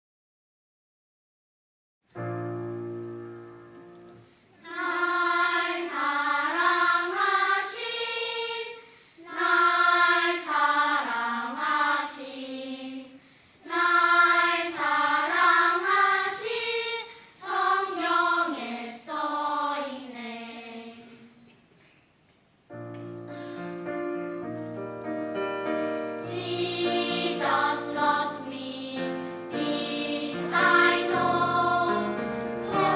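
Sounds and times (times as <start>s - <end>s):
choir singing unaccompanied: 4.6s - 21.4s, 26.1s - 32.9s.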